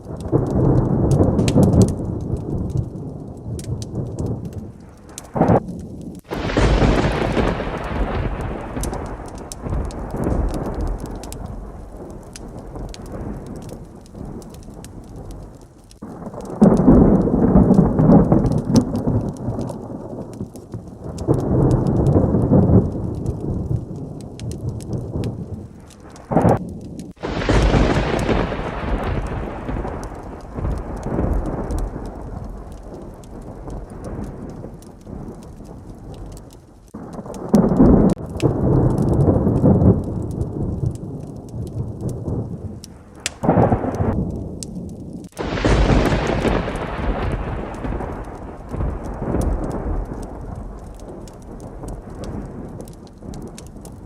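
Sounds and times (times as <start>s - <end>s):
heavy rain falling: 0.0s - 54.0s
sharp loud thunderclap: 0.0s - 54.0s
thunder rolling: 0.0s - 54.0s.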